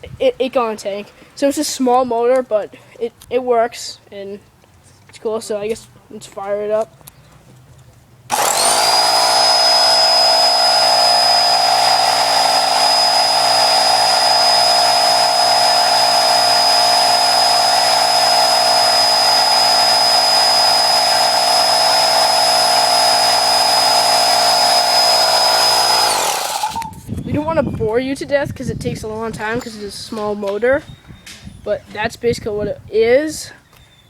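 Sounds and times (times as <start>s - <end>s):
air compressor running: 8.3s - 27.0s.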